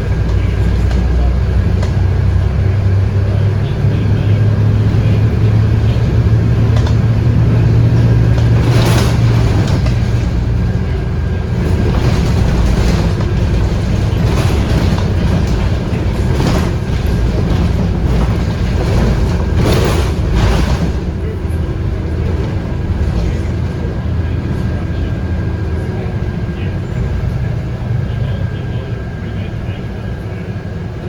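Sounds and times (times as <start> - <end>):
diesel engine drone: 0.0 - 31.0
road and cabin noise: 0.0 - 31.0
body rattles: 4.2 - 26.2.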